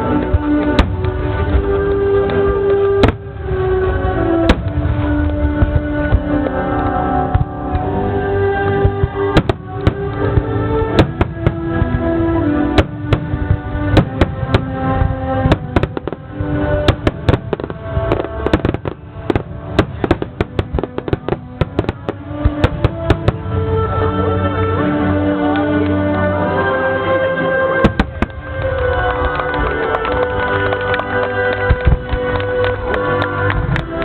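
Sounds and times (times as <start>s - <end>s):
fireworks shells bursting with bangs: 8.7s - 23.7s.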